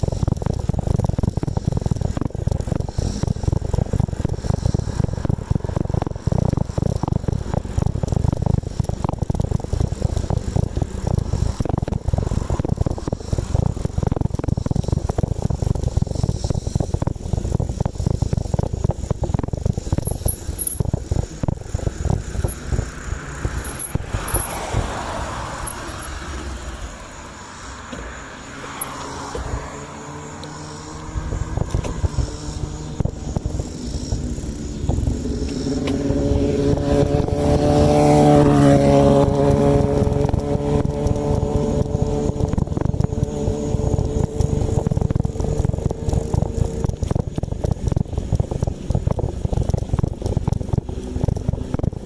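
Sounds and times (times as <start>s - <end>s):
motor vehicle engine drone: 0.0s - 52.0s
wind rumble on microphone: 0.0s - 52.0s
vehicles passing: 19.6s - 48.9s.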